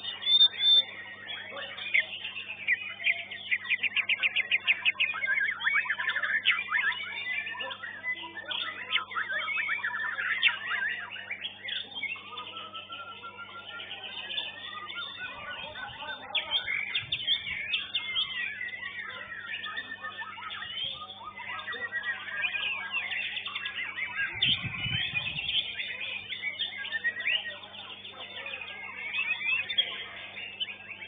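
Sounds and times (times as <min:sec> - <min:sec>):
songbirds singing: 0:00.0 - 0:31.0.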